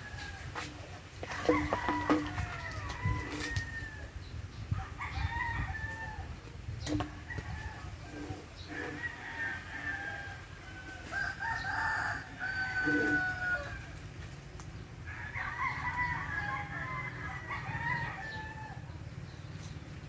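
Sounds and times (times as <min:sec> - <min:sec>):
wind on microphone: 0:00.0 - 0:10.1
rooster crowing: 0:01.4 - 0:04.1, 0:07.3 - 0:13.9, 0:15.1 - 0:18.9.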